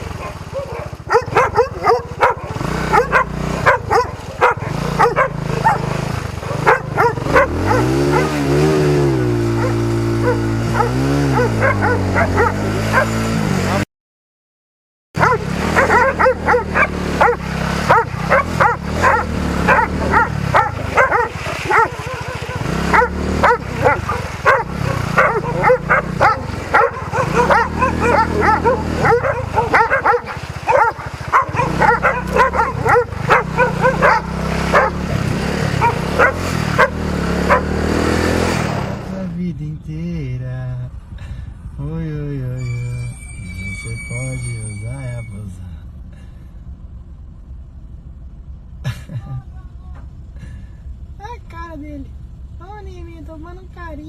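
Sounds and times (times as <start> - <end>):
dogs barking: 0.0 - 13.8, 15.2 - 38.2
motorcycle engine revving: 0.0 - 13.8, 15.2 - 40.1.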